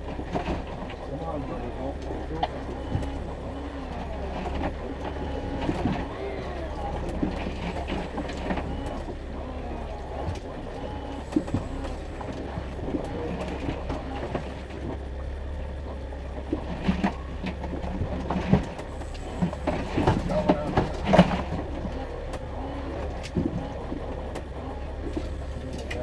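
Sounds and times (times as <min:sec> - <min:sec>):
boat motor droning: 0:00.0 - 0:26.0.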